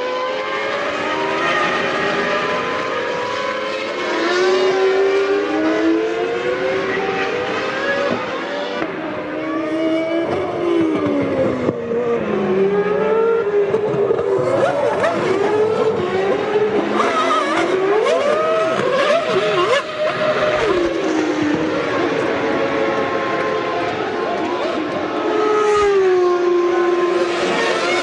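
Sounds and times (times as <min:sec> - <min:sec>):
racing car engines passing: 0:00.0 - 0:28.0.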